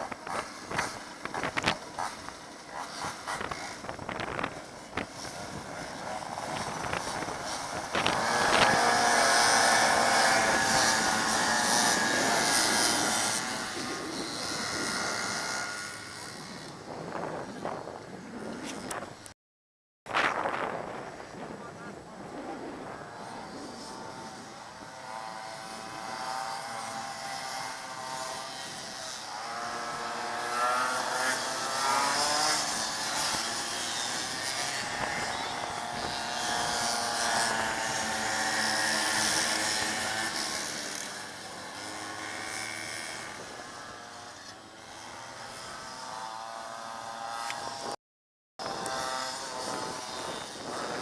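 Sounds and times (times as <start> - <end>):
minibike engines revving high: 0.0 - 18.0, 22.9 - 48.0, 48.6 - 51.0.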